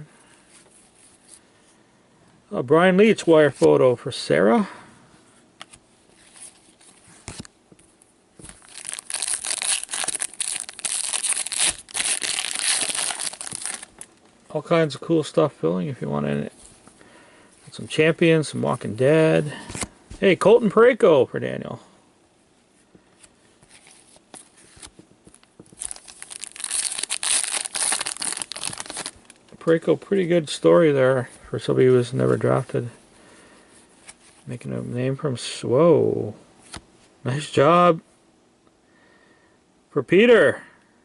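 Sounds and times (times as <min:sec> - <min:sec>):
plastic packaging crinkling: 0:08.4 - 0:14.3, 0:23.7 - 0:29.8.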